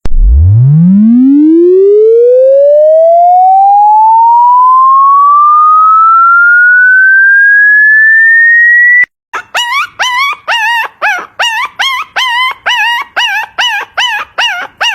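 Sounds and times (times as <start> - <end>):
electronic tone sweeping upward: 0.0 - 9.1.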